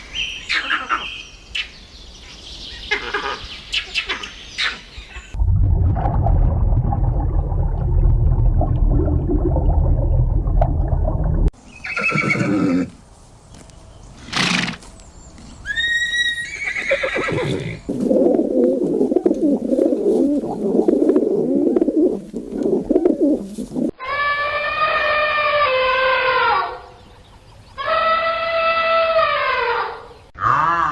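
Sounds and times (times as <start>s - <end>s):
horse whinnying: 11.8s - 12.9s, 15.7s - 17.9s.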